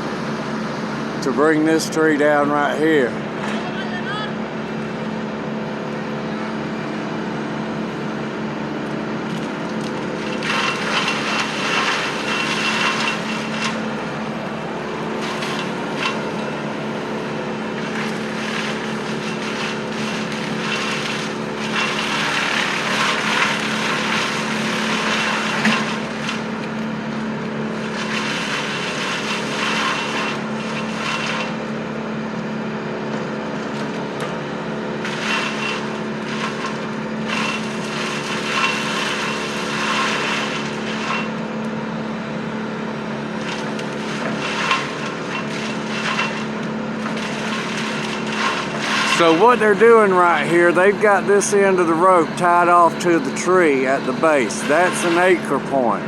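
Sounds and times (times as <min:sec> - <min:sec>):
work machine engine running: 0:00.0 - 0:56.0
crunching and cracking wood: 0:09.2 - 0:31.6, 0:43.2 - 0:49.7.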